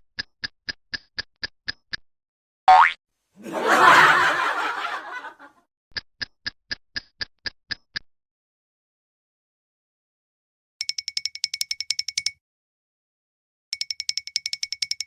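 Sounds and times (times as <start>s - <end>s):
snickering laugh: 3.4s - 5.5s.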